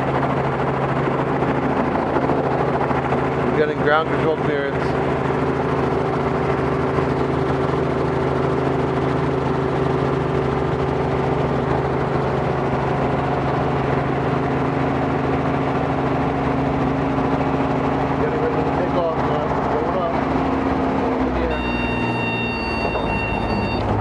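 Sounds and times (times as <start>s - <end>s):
helicopter engine and rotors running: 0.0s - 24.0s.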